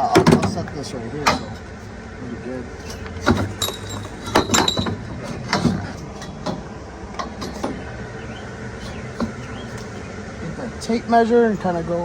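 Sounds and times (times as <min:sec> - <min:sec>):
metal tubing clanking: 0:00.0 - 0:01.7, 0:02.8 - 0:10.1.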